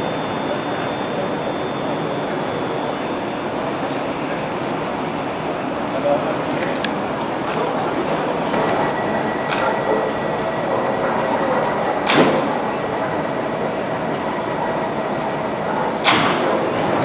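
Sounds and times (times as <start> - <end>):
train equipment droning: 8.1 - 17.0.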